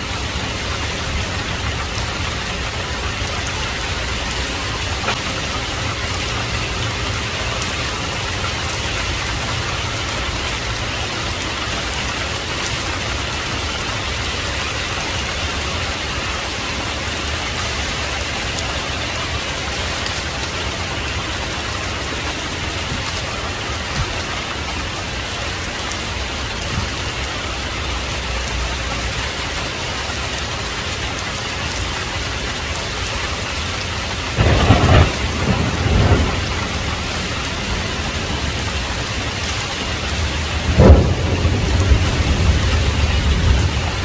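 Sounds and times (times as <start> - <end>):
heavy rain falling: 0.0 - 44.0
thunder cracking and rumbling: 34.1 - 44.0.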